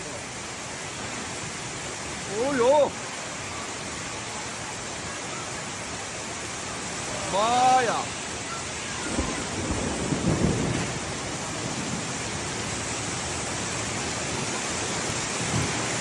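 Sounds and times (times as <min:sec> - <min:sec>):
heavy rain pouring: 0:00.0 - 0:16.0
low thunder rumble: 0:09.0 - 0:13.3.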